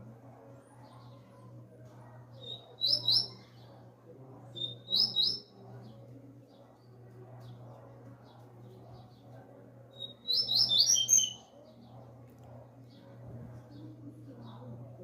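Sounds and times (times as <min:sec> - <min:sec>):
bird singing high phrases: 0:02.4 - 0:03.4, 0:04.6 - 0:05.5, 0:10.0 - 0:11.5.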